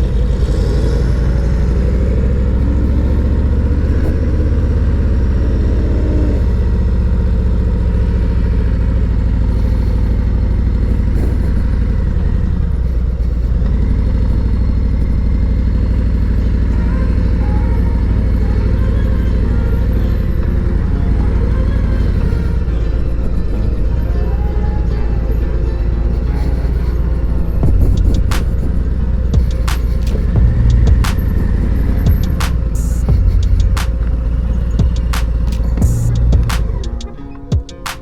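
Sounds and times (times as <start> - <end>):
motorcycle exhaust note: 26.9 - 37.2.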